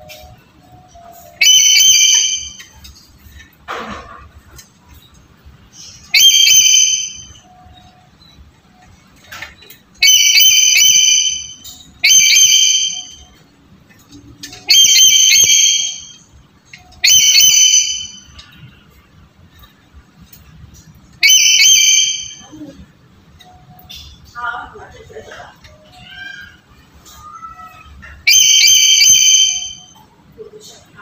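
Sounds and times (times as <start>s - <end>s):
bird calling high-pitched: 0.0s - 3.0s, 5.7s - 13.5s, 14.4s - 18.9s, 21.1s - 22.8s, 25.4s - 30.1s.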